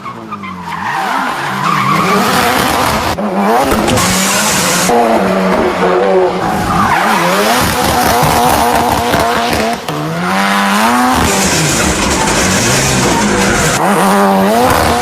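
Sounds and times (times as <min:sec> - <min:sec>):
car engine revving: 0:00.8 - 0:15.0.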